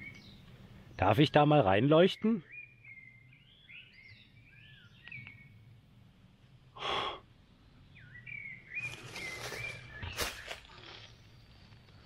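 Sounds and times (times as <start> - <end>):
blackbird singing: 0.0 - 5.6, 7.8 - 11.4
sharp breath out: 6.8 - 7.2.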